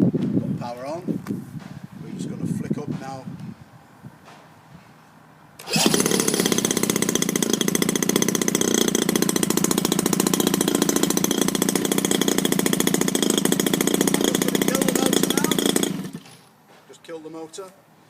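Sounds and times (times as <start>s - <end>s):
model engine running: 5.6s - 16.5s
electric starter whirring: 5.6s - 16.6s.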